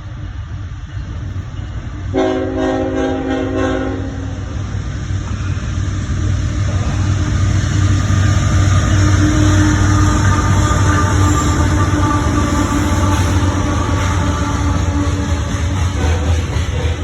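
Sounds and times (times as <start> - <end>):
approaching train rumble: 0.0 - 17.0
locomotive air horn blast: 2.1 - 4.5, 9.2 - 16.3.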